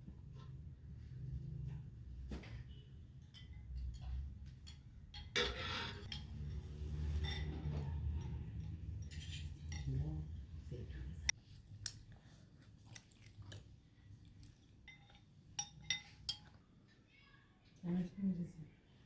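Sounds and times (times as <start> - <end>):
utensils clinking on dishes: 2.9 - 11.2, 14.6 - 16.6
utensil scraping dish: 5.2 - 9.9.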